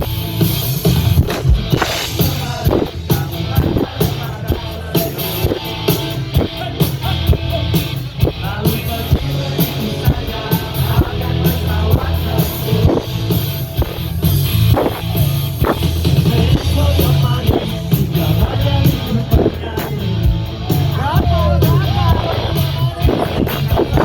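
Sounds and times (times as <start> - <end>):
drum kit beat: 0.0 - 24.0
live rock band playing: 0.0 - 24.0.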